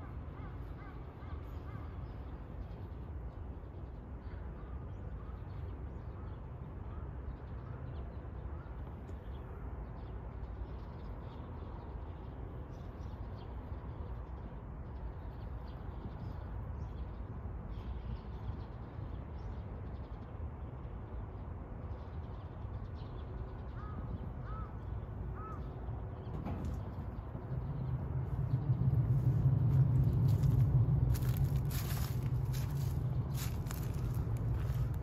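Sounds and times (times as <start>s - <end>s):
low rumble: 26.7s - 35.0s.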